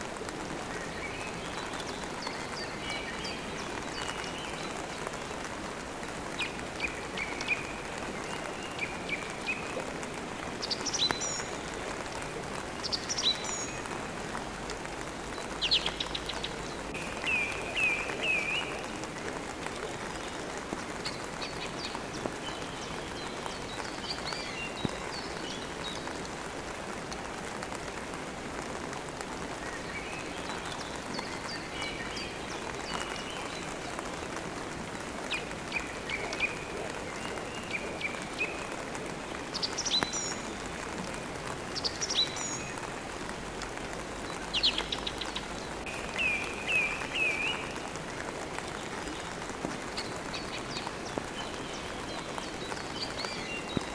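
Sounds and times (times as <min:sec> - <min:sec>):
steady rain: 0:00.0 - 0:53.9
small birds chirping: 0:44.0 - 0:53.9.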